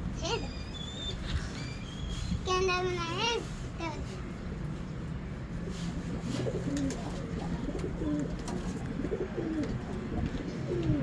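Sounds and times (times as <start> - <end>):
pigeons cooing: 6.2 - 11.0.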